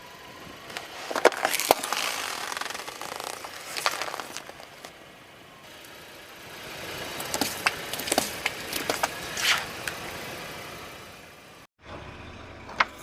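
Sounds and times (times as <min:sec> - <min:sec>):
tyre crushing something brittle: 0:00.7 - 0:04.9.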